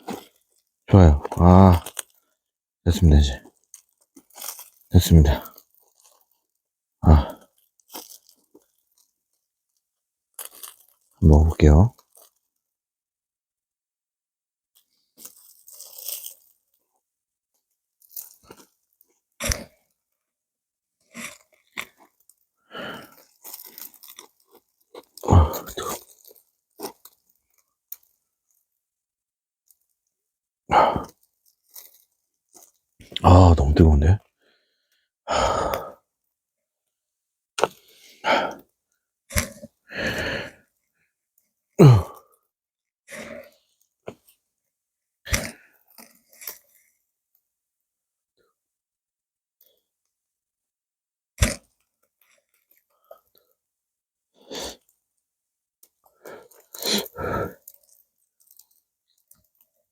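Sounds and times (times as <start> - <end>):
person chewing crunchy food: 0.0 - 0.6, 1.2 - 2.2, 3.6 - 6.3, 7.2 - 9.1, 10.4 - 11.1, 15.2 - 16.6, 19.4 - 19.8, 21.1 - 28.6, 39.3 - 40.2, 45.3 - 46.8, 51.4 - 51.7, 56.1 - 58.8
person huffing short breaths: 25.3 - 25.8, 41.8 - 42.2.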